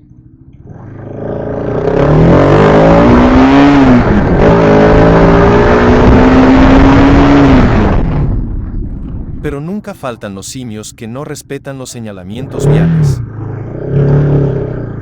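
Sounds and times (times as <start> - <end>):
motorcycle engine accelerating: 0.0 - 9.4, 12.4 - 15.0.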